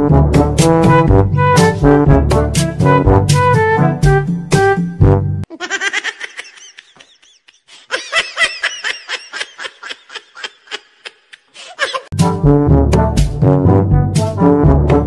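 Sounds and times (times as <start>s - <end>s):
music: 0.0s - 5.5s, 12.1s - 15.0s
high-pitched laughter: 5.5s - 12.1s.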